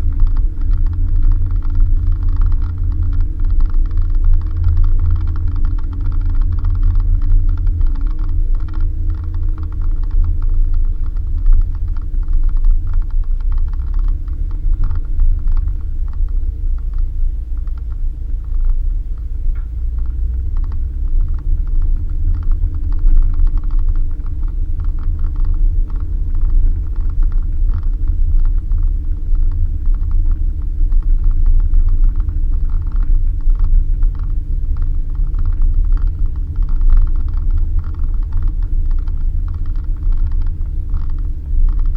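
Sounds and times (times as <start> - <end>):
car engine drone: 0.0 - 41.9
low road rumble: 0.0 - 41.9
small rattles and clicks: 0.0 - 41.9.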